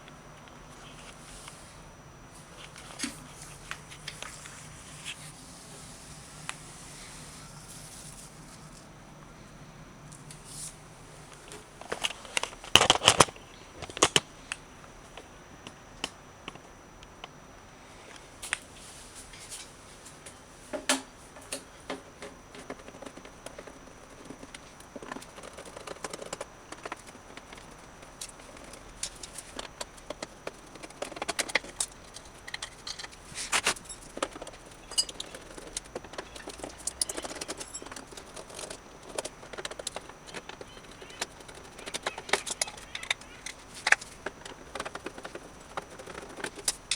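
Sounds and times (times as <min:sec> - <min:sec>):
tool clicks and rattles: 0:11.8 - 0:14.2, 0:21.4 - 0:46.9.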